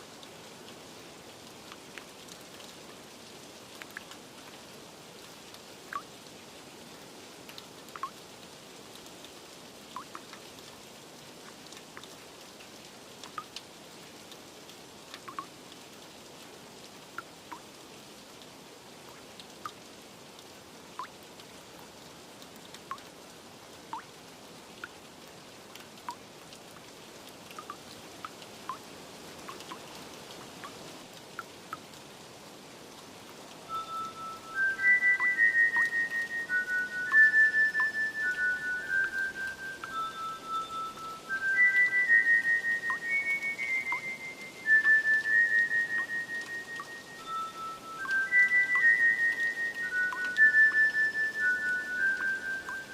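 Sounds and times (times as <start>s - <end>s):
steady light rain: 0.0s - 52.9s
water drips plinking: 3.7s - 4.6s, 5.9s - 6.2s, 7.5s - 8.2s, 9.9s - 10.8s, 11.4s - 13.7s, 14.3s - 15.8s, 17.0s - 17.8s, 19.0s - 21.5s, 22.4s - 23.2s, 23.9s - 32.0s, 33.3s - 52.9s.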